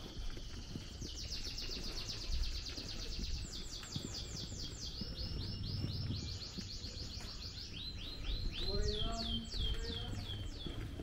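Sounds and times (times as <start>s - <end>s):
bird chirping rapidly: 1.1s - 10.9s.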